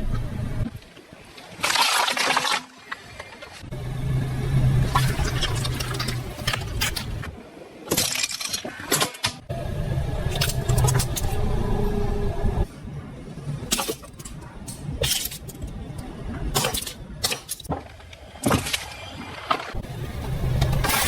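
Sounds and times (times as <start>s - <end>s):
objects crushed under tyres: 1.6s - 3.4s
car engine running: 3.7s - 7.2s.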